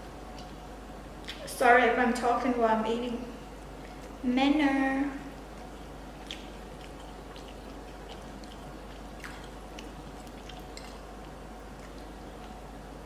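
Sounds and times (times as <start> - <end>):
person chewing food: 0.2 - 0.7, 5.3 - 13.0.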